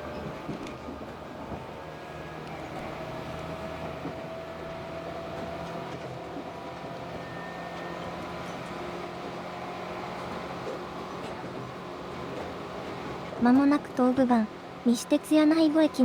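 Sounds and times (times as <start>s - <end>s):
electric train running: 0.0s - 16.0s.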